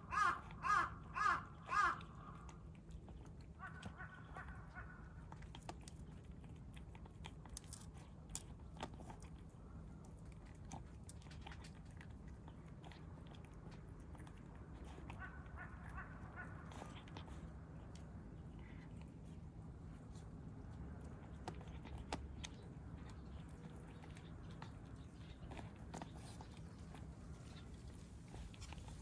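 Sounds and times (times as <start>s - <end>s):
distant crow cawing: 0.0s - 2.5s, 3.6s - 5.1s
kittens crunching food: 0.0s - 29.0s.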